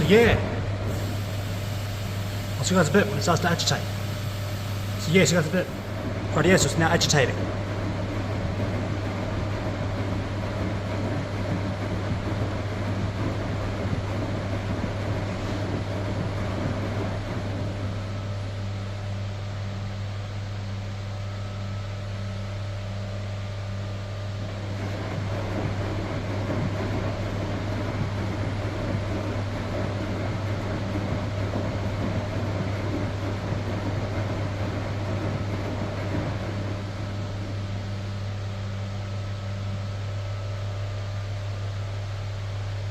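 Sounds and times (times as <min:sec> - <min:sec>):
washing machine agitating: 0:00.0 - 0:18.9, 0:24.4 - 0:39.4
steady low hum: 0:00.0 - 0:42.9.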